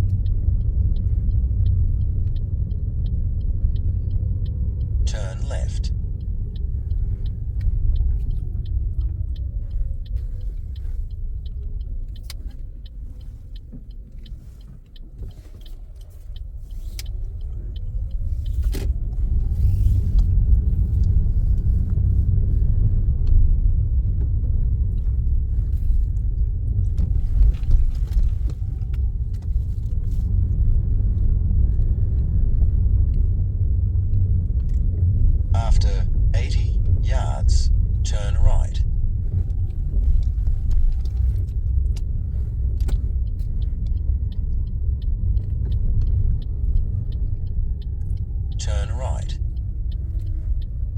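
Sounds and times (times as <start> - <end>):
car engine and road rumble: 0.0 - 50.9.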